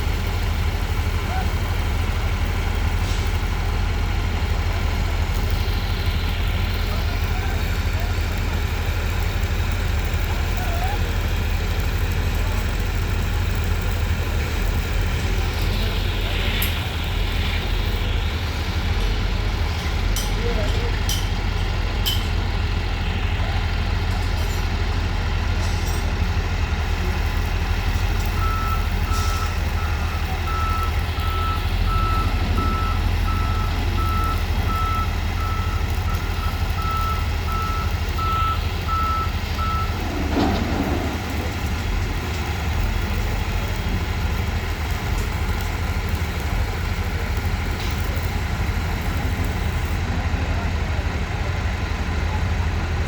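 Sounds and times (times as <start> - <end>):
diesel engine running: 0.0 - 53.0
reversing alarm beeping: 28.2 - 40.5.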